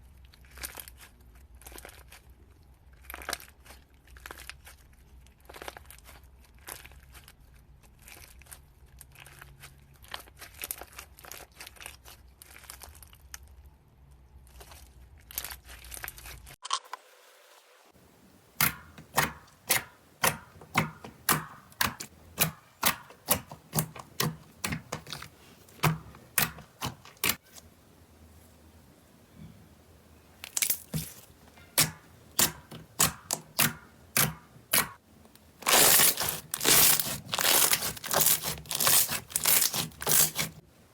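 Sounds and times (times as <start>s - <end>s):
slime crackling when squeezed: 35.6s - 40.6s.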